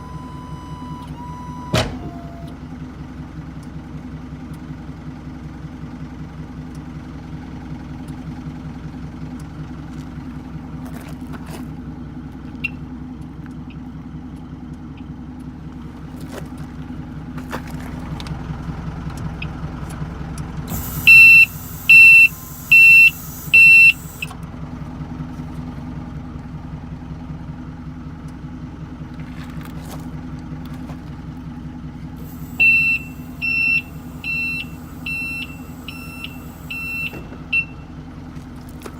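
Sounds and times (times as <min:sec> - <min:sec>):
truck engine idling: 0:00.0 - 0:38.9
high-pitched electronic warning beeps: 0:20.7 - 0:24.3, 0:32.3 - 0:37.8.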